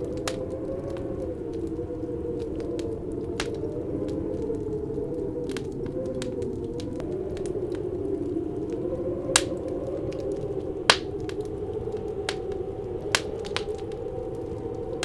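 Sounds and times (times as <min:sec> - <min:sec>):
howling wind: 0:00.0 - 0:15.0
wood fire crackling and popping: 0:00.0 - 0:15.0.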